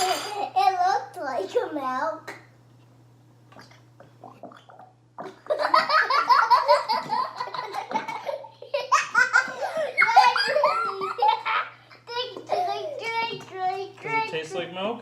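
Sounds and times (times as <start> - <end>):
people laughing: 5.5 - 11.6.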